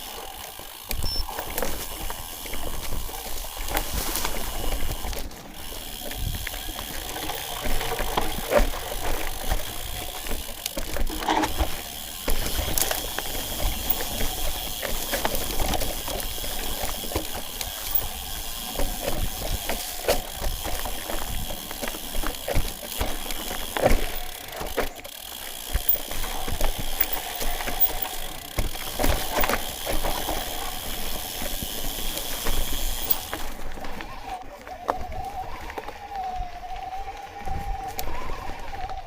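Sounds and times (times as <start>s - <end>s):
footsteps on rocky trail: 0.0s - 39.0s
wind rumbling on microphone: 0.9s - 23.2s, 33.8s - 39.0s.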